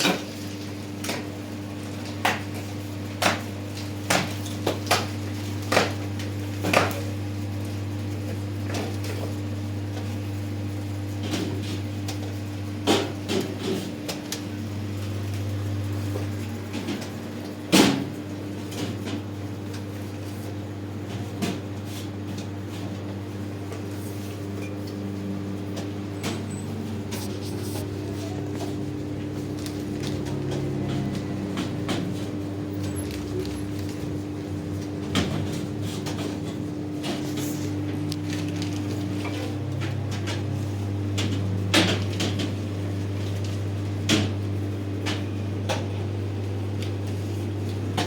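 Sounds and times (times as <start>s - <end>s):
steady low hum: 22.8s - 45.2s.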